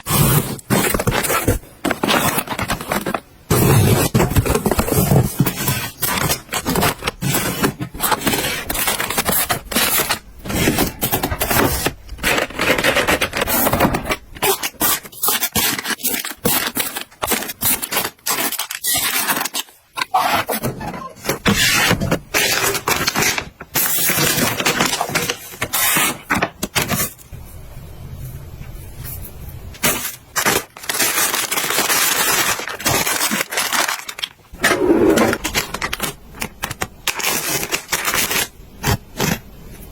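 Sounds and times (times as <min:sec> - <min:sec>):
objects scraping: 0:34.6 - 0:36.2.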